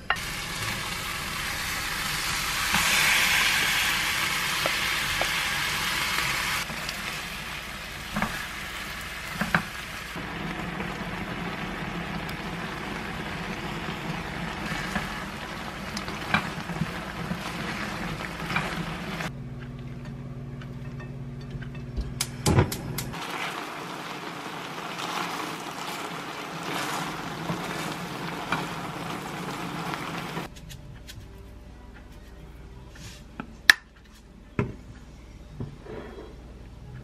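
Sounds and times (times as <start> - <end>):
stir-fry sizzling in a pan: 0.1 - 19.3, 23.1 - 30.5.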